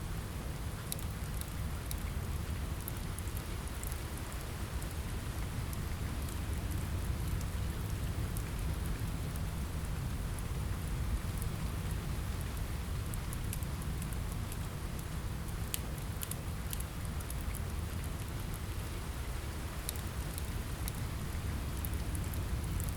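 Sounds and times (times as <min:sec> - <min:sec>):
steady rain: 0:00.0 - 0:22.9
small sharp ticks: 0:15.7 - 0:18.6.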